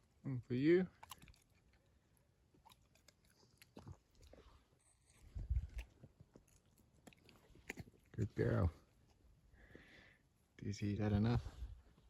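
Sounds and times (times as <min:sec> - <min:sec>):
dogs chewing and crunching: 0:00.8 - 0:08.8.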